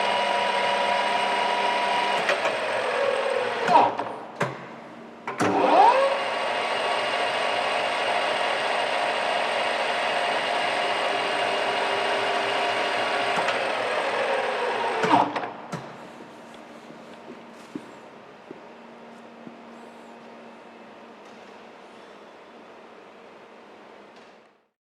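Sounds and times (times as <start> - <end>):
lathe spindle whining: 0.0 - 3.9, 5.5 - 15.4.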